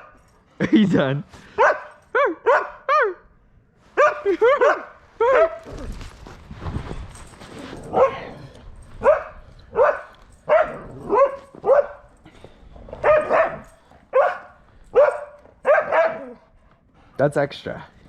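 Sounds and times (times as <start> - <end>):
huskies barking and yipping: 7.6 - 12.2, 12.9 - 16.6.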